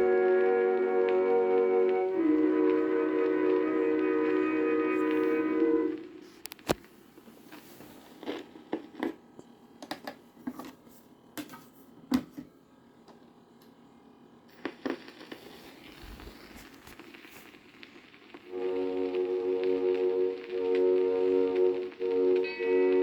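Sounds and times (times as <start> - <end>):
record surface hiss: 0.0 - 23.0
record clicks and pops: 6.4 - 6.9, 14.5 - 18.5.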